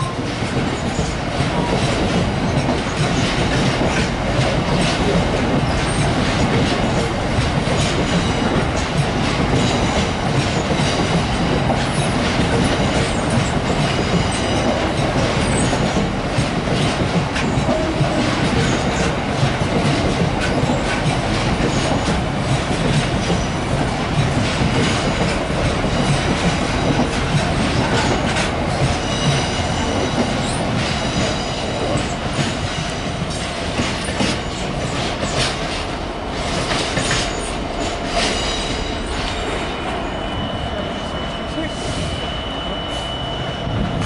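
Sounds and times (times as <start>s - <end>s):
train wheels rumbling on rail: 0.0s - 44.0s
high wheel squeal: 38.4s - 44.0s.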